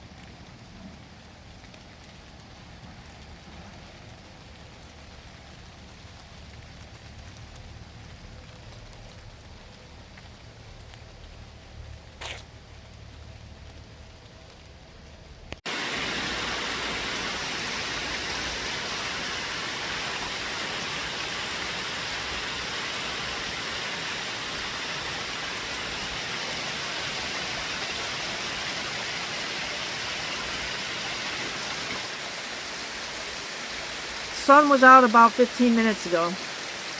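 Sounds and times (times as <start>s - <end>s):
heavy rain hissing: 15.6s - 36.9s.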